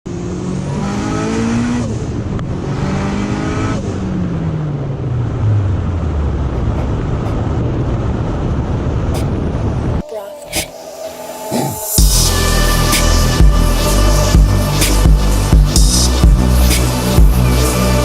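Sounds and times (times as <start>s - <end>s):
car engine accelerating: 0.1s - 10.1s.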